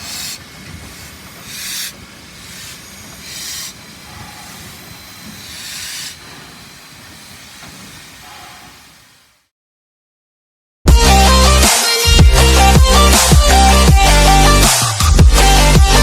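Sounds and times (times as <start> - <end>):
steam hiss bursts: 0.0 - 9.5
steam locomotive rumble: 0.0 - 9.5.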